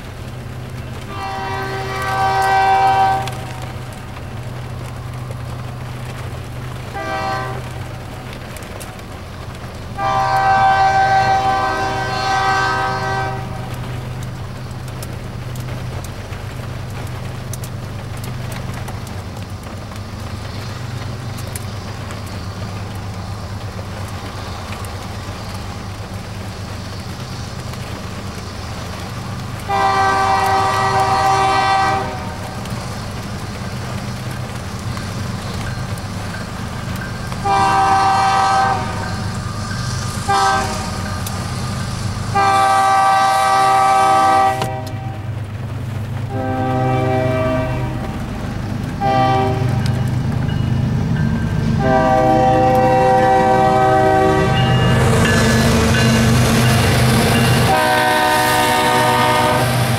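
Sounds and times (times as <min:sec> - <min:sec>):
diesel engines rumbling: 0:00.0 - 0:59.9
locomotive air horn blasts: 0:01.1 - 0:03.5, 0:06.9 - 0:07.8, 0:10.0 - 0:13.7, 0:29.7 - 0:32.6, 0:37.4 - 0:39.3, 0:40.3 - 0:41.0, 0:42.3 - 0:45.2, 0:46.3 - 0:48.2, 0:49.0 - 0:49.9, 0:51.8 - 0:56.3, 0:57.6 - 0:59.8.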